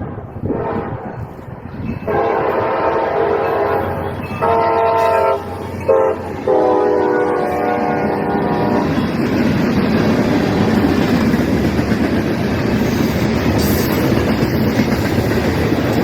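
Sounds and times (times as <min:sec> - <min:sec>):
passing train rumble: 0:00.0 - 0:16.0
locomotive air horn: 0:00.4 - 0:01.2, 0:02.0 - 0:09.1.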